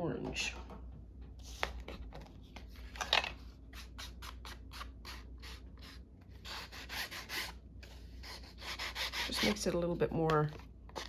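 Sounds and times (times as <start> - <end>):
pencil scratching on paper: 3.8 - 7.6, 8.2 - 9.7.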